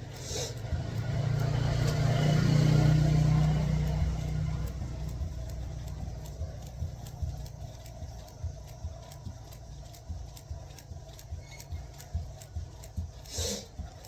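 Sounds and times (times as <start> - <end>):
vehicle engine passing by: 0.0 - 7.2.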